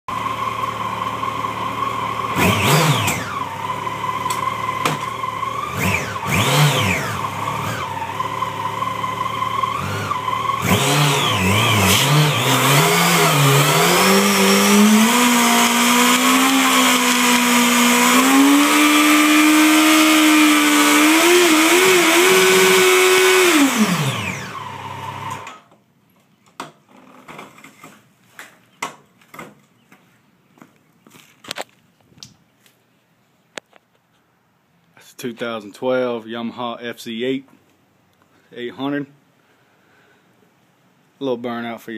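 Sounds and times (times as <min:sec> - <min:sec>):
motorcycle engine revving: 0:00.1 - 0:25.5.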